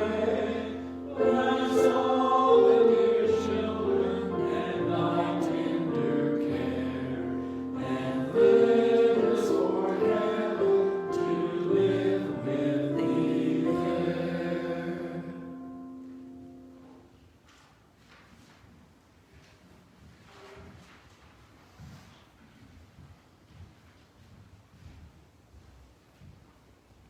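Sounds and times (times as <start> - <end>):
choral music with held chords: 0.0 - 17.1.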